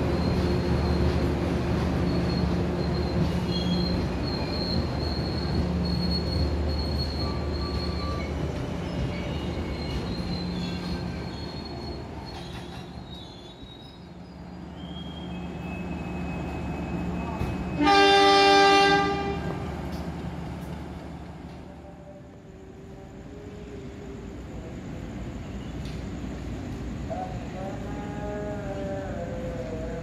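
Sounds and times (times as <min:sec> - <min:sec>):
train coaches rumbling past: 0:00.0 - 0:30.0
thin wheel squeals: 0:01.9 - 0:17.8
diesel locomotive horn: 0:17.2 - 0:19.7.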